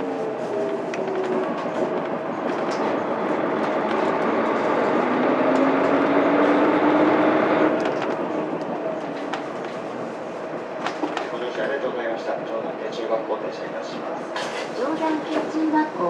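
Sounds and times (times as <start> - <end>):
road noise: 0.0 - 11.6.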